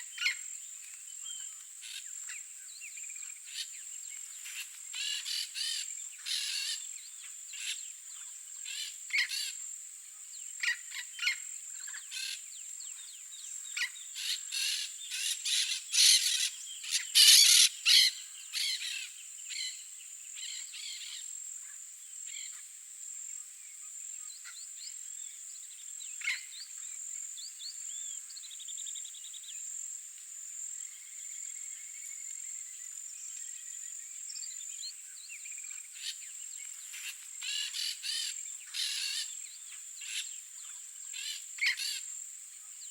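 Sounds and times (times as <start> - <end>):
small birds chirping: 10.2 - 22.6, 23.6 - 29.6, 30.7 - 42.9
parrots giving harsh calls: 17.2 - 18.8.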